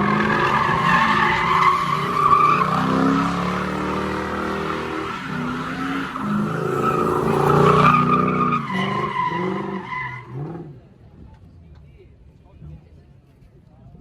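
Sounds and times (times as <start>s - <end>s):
tyres squealing: 0.0s - 10.4s
car engine revving: 0.0s - 10.7s.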